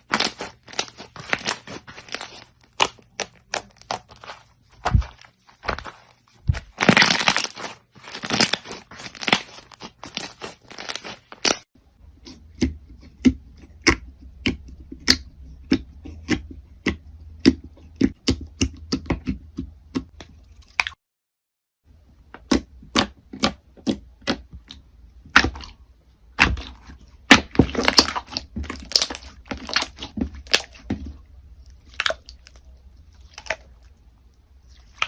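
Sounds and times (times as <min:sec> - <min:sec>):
crunchy slime crackling: 0:00.0 - 0:11.6, 0:22.6 - 0:35.0.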